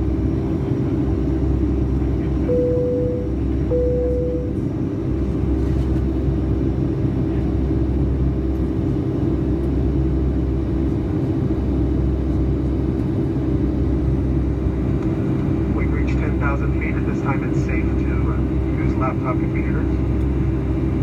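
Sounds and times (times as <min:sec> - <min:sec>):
airplane cabin roar: 0:00.0 - 0:21.0
constant low hum: 0:00.0 - 0:21.0
cabin chime tone: 0:02.5 - 0:04.6.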